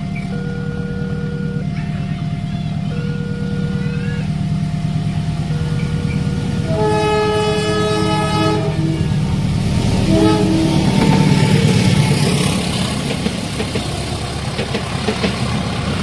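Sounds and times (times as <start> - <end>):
level crossing warning tones: 0.0 - 12.9
train rumble: 0.0 - 16.0
locomotive horn: 0.2 - 12.5.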